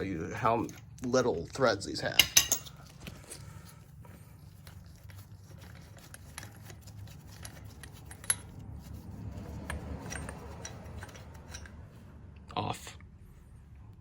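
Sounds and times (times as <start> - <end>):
low steady hum: 0.0 - 14.0
lug nut clicking and scraping: 2.2 - 12.1.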